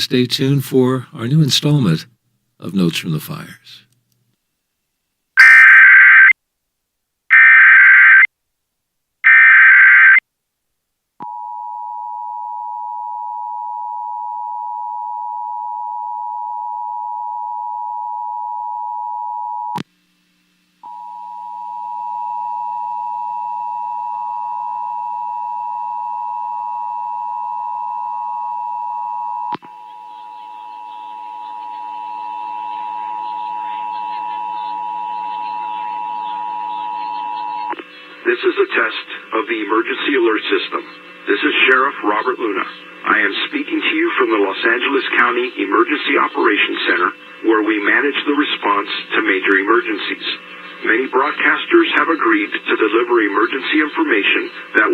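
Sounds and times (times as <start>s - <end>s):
screechy data bursts: 5.4s - 6.3s, 29.7s - 54.9s
faint station audio: 29.6s - 54.9s.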